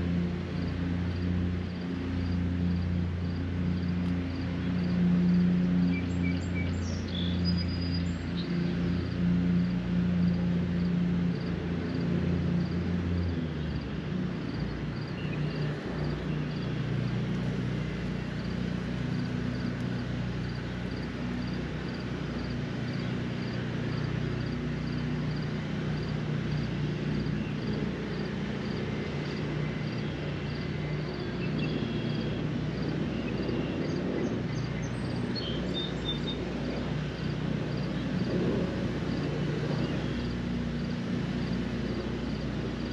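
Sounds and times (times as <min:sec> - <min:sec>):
engine droning: 0:00.0 - 0:42.9
birds chirping: 0:05.6 - 0:09.7, 0:13.2 - 0:38.4, 0:39.0 - 0:42.9.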